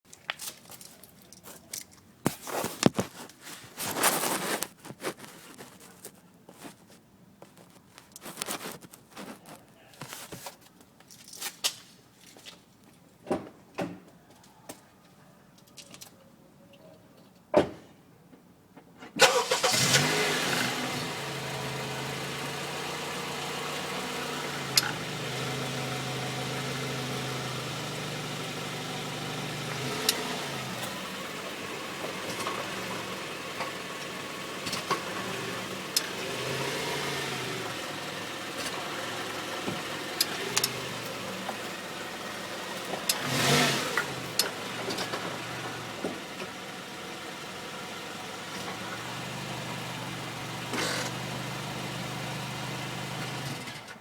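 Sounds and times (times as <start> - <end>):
car engine starting and idling: 19.2 - 54.0.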